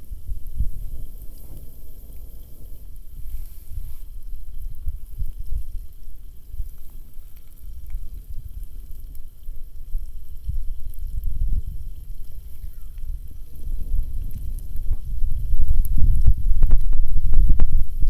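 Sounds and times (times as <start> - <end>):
faint crackling hiss: 0.0 - 18.0
wind buffeting microphone: 0.0 - 18.0
scattered ticks: 4.2 - 17.9.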